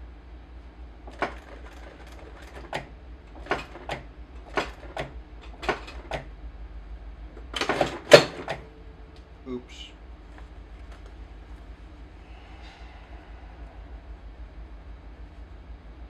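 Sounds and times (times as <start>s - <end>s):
sewing machine stitching: 1.1s - 6.3s, 7.5s - 8.6s.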